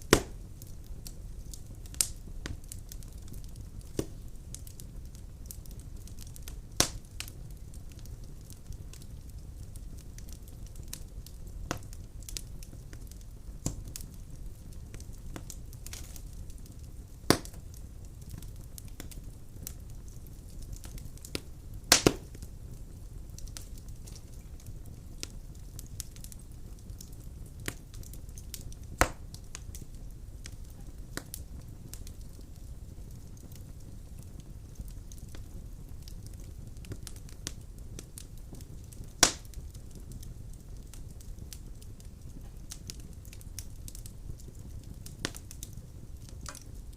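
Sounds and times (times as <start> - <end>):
low rumble of flames: 0.0 - 46.9
sharp pops of burning firewood: 0.0 - 46.9
wood fire crackling: 0.0 - 46.9.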